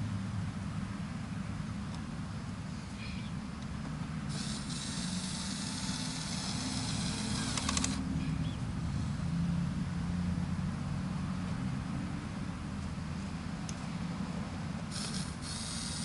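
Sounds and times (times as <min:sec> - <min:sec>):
sharp clicks: 0:04.3 - 0:08.0.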